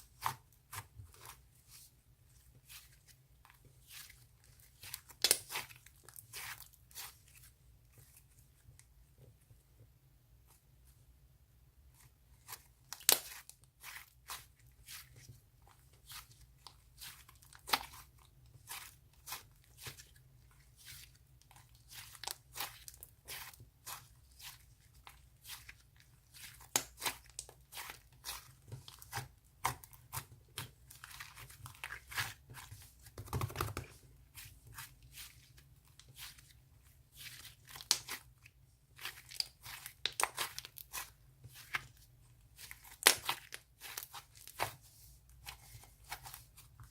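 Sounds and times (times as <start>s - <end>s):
slime crackling and popping: 37.6s - 38.3s, 39.0s - 41.1s, 42.6s - 44.7s.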